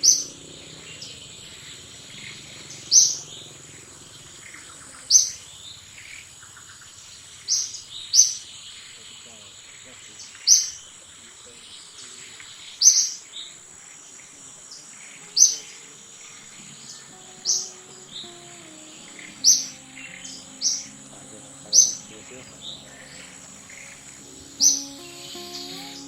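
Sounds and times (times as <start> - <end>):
soft music: 0.0 - 3.6, 13.3 - 26.0
high insect drone: 0.0 - 7.8, 8.7 - 26.0
bird chirping high and loud: 16.4 - 26.0.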